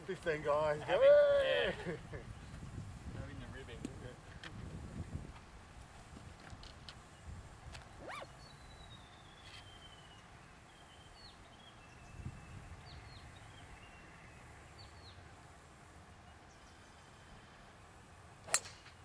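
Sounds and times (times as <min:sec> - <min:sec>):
faint birdsong: 0:06.6 - 0:19.0.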